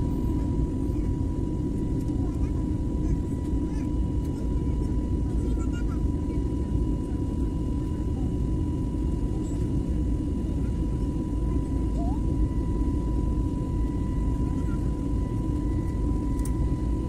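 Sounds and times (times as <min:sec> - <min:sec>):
airliner cabin rumble: 0:00.0 - 0:17.0
thin steady whine: 0:06.2 - 0:17.0.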